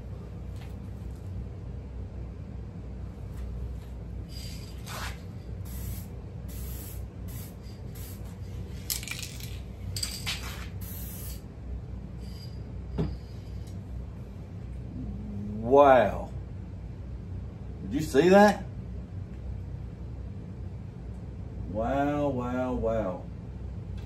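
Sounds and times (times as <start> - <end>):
aerosol can spraying: 4.8 - 8.4, 10.4 - 11.4.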